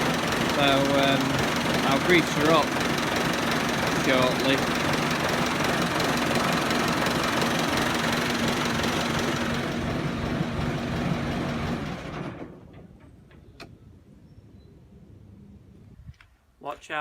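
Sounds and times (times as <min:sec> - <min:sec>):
diesel tractor engine idling: 0:00.0 - 0:12.7.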